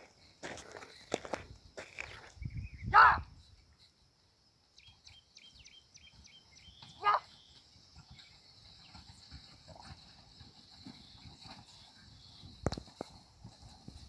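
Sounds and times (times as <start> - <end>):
insect drone: 0.0 - 14.0
bird chirping: 2.2 - 9.3.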